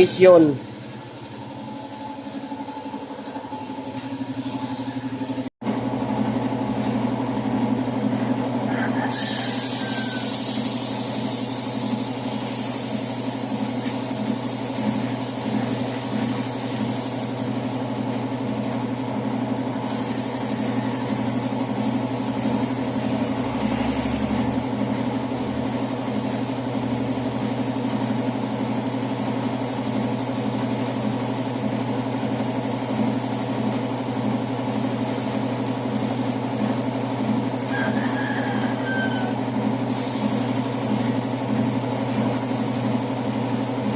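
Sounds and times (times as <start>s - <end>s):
paint spray gun hissing: 9.1s - 19.2s, 19.8s - 23.8s, 24.5s - 37.7s, 38.7s - 43.9s
steady low hum: 11.0s - 31.0s.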